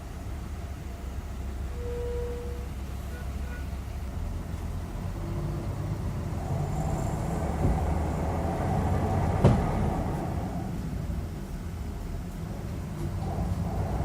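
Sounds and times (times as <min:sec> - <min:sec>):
bus engine running: 0:00.0 - 0:14.0
sharp thump: 0:09.4 - 0:09.8.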